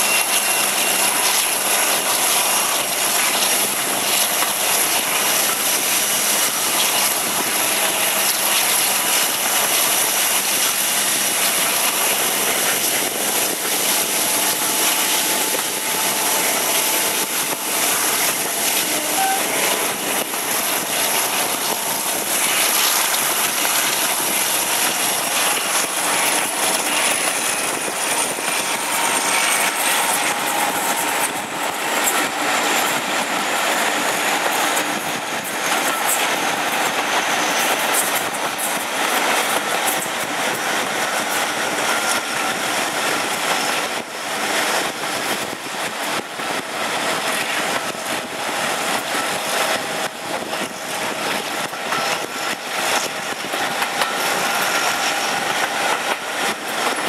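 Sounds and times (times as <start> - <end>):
train wheels rushing on rails: 0.0 - 57.0
high whine falling in pitch: 11.5 - 36.1.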